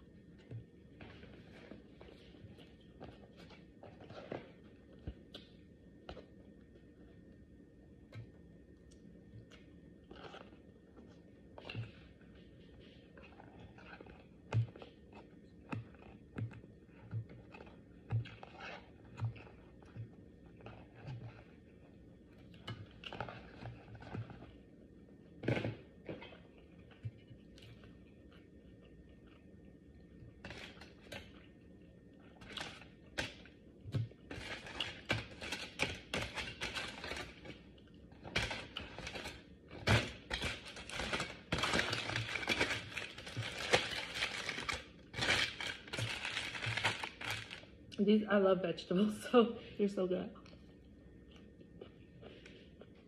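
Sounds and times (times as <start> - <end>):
crackly handling and rustling: 0.0 - 48.2, 49.0 - 53.0
person chewing: 25.4 - 30.1, 50.4 - 53.0.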